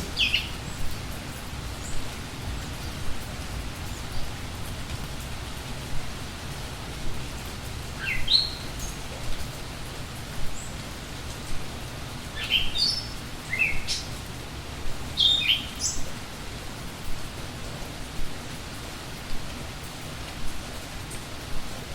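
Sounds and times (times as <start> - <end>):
songbird chirping: 0.0 - 5.7, 7.3 - 9.5, 12.3 - 14.2, 15.0 - 16.2
steady rain hiss: 0.0 - 21.9.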